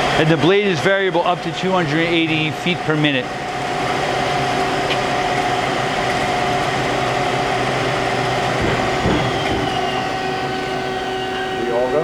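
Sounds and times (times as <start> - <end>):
bandsaw mechanical hum: 0.0 - 12.0
low thump: 8.6 - 9.8.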